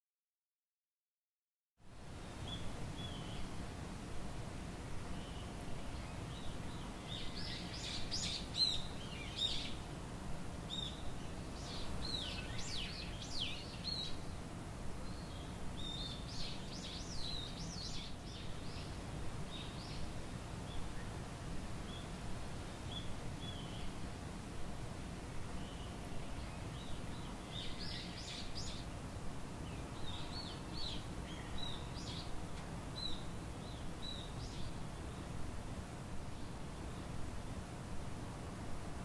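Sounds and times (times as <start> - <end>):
songbirds chirping and singing: 5.1 - 9.8, 10.6 - 24.0, 25.5 - 29.0, 29.6 - 35.4.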